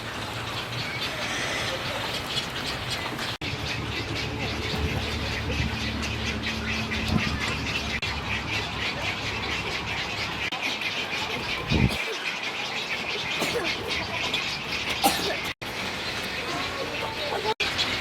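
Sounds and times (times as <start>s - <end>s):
wading birds squawking and chattering: 0.0s - 18.0s
low rumble: 3.4s - 10.2s.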